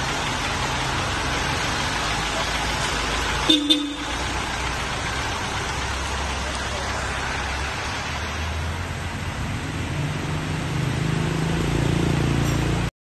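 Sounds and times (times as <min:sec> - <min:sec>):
rain hissing: 0:00.0 - 0:11.4
car engine running: 0:00.0 - 0:12.9.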